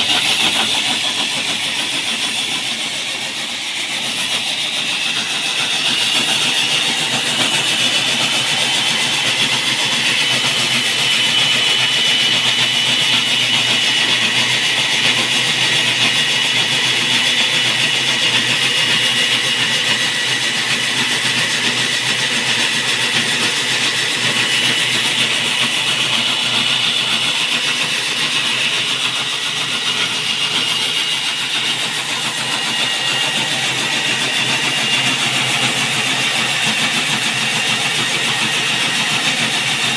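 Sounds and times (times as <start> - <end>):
core drill motor whining: 0.0 - 39.9
drill grinding through concrete: 0.0 - 39.9.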